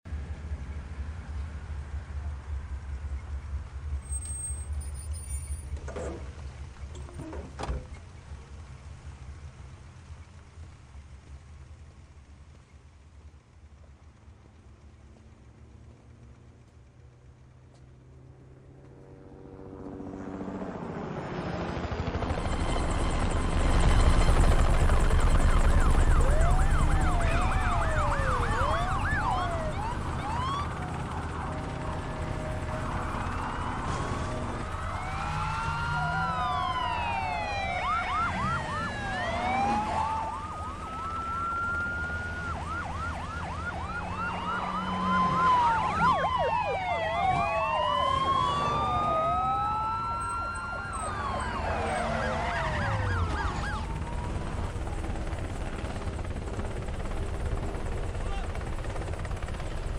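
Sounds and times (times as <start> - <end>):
police sirens wailing: 22.2 - 59.8.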